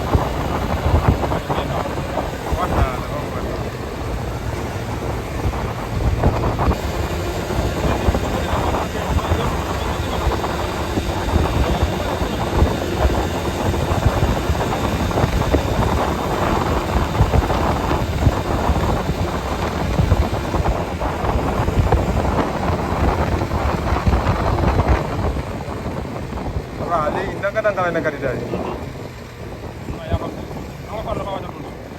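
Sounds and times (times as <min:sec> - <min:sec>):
vehicle engine and tyre rumble: 0:00.0 - 0:31.9
wind buffeting microphone: 0:00.0 - 0:31.9.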